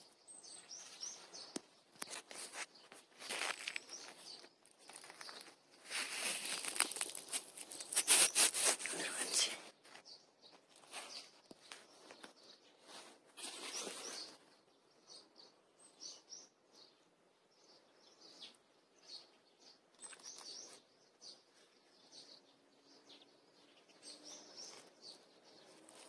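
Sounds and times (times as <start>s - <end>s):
short rustling: 2.0s - 8.9s
faint bird chirps: 7.8s - 26.0s.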